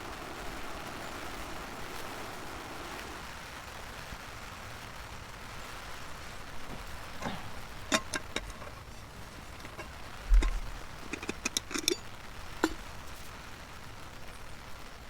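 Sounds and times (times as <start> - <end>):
cookware clicks and knocks: 7.2 - 12.8.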